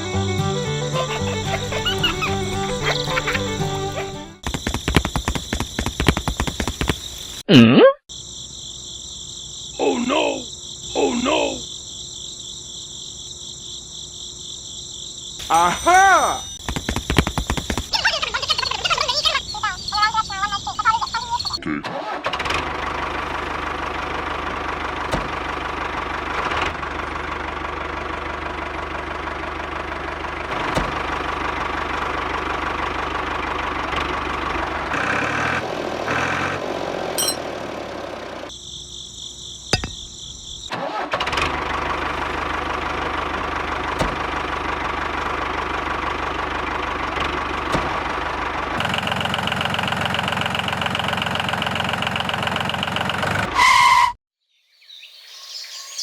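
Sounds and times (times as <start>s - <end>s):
small petrol engine running: 0.0s - 6.9s, 22.4s - 38.5s, 41.2s - 53.4s.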